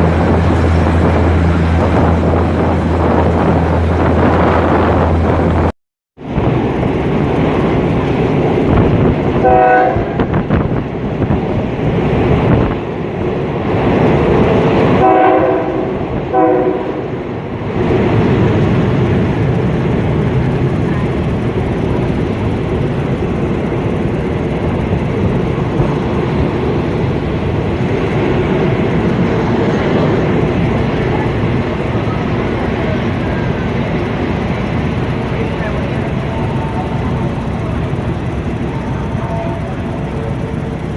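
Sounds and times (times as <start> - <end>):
train rumbling: 0.0 - 40.9
train horn: 9.4 - 10.3, 15.0 - 17.1.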